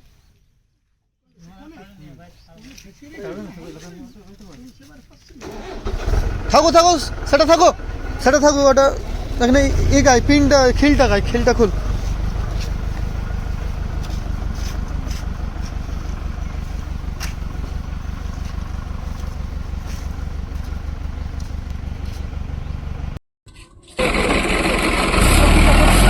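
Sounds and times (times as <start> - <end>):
tractor diesel engine running: 5.4 - 23.2, 23.9 - 26.0.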